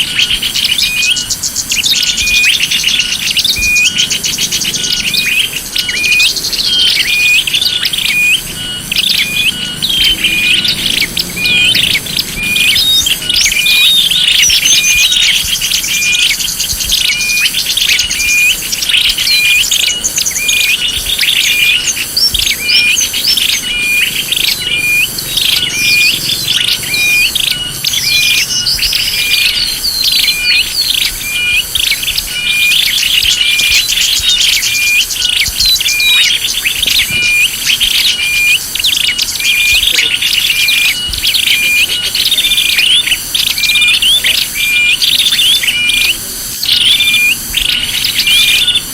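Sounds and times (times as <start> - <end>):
small songbirds chirping: 0.0 - 48.9.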